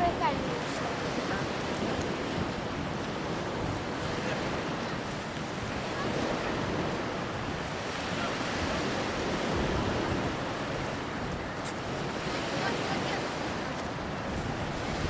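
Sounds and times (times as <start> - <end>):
sea surf washing: 0.0 - 15.0
wind rumbling on microphone: 0.0 - 15.0.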